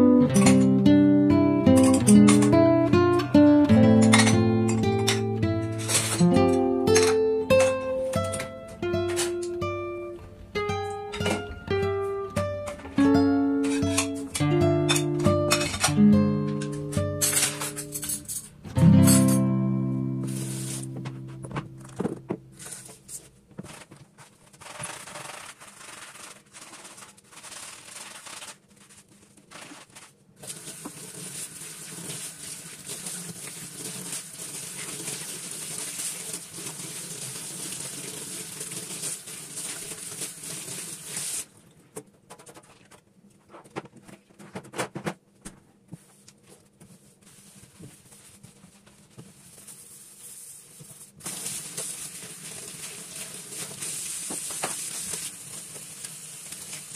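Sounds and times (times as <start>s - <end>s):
scrubbing: 22.6s - 41.5s, 46.8s - 56.9s.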